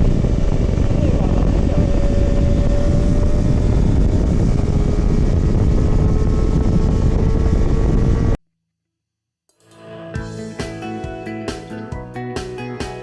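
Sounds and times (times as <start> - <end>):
motorcycle engine cruising: 0.0 - 8.4
wind rush: 0.0 - 8.4.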